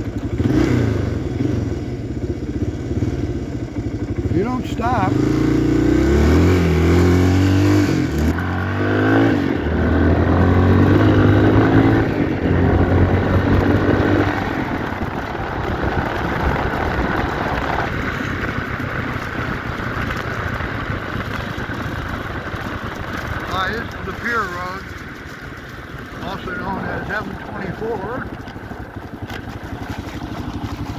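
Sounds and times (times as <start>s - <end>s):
motorcycle engine accelerating: 0.0s - 30.9s
rushing wind noise: 5.1s - 24.1s.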